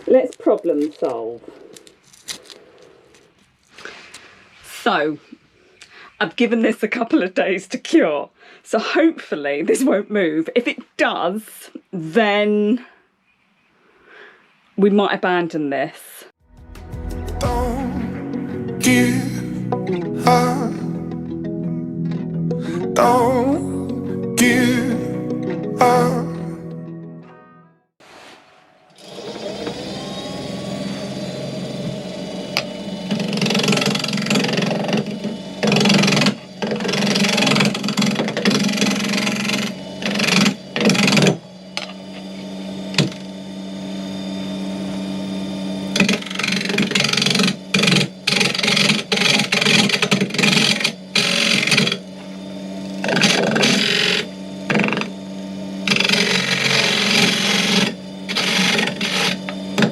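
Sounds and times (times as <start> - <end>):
gouge cutting spinning wood: 29.0 - 59.9
wood lathe motor running: 29.0 - 59.9.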